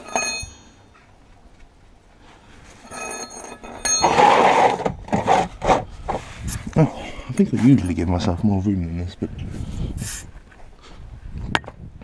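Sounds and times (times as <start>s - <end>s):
metal tool clinks: 0.0s - 0.7s, 2.8s - 4.0s.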